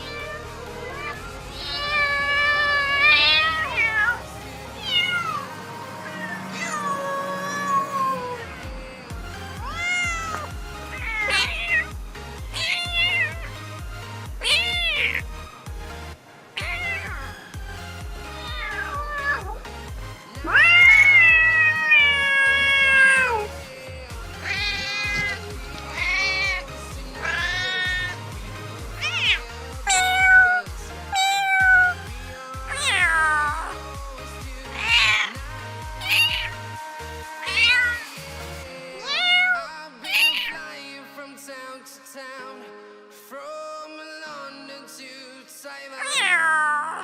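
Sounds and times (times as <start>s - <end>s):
cats meowing: 0.0s - 8.5s, 9.5s - 11.9s, 12.5s - 13.6s, 14.4s - 15.3s, 16.6s - 17.5s, 18.2s - 19.7s, 20.4s - 23.6s, 24.3s - 32.1s, 32.7s - 33.9s, 34.6s - 35.4s, 36.0s - 36.7s, 37.4s - 38.2s, 39.0s - 40.7s, 46.0s - 47.0s
background music with low beat: 0.0s - 39.1s.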